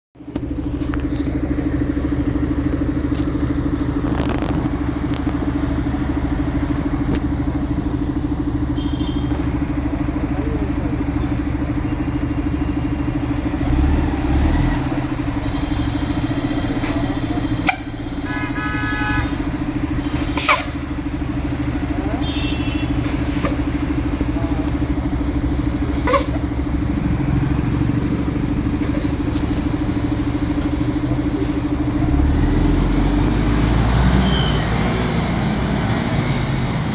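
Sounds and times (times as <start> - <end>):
truck engine droning: 0.2 - 36.9
short pitched tone: 32.1 - 36.9.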